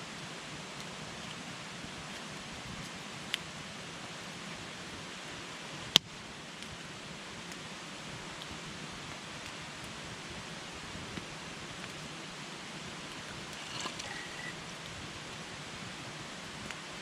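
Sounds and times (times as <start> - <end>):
campfire burning and crackling: 0.0 - 17.0.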